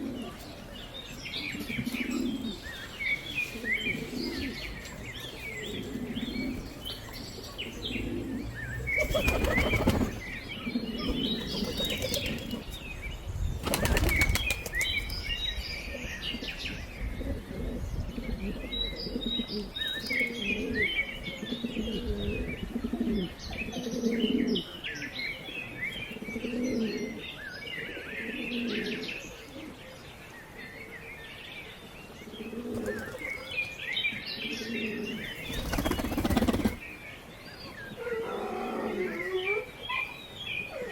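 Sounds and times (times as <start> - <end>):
low pigeon coos: 0.0 - 0.6, 1.4 - 2.8, 3.4 - 12.7, 16.3 - 24.8, 26.0 - 30.0, 34.4 - 35.3, 37.8 - 40.9
pigeon wings flapping: 9.0 - 10.2, 13.6 - 14.9, 35.5 - 36.8.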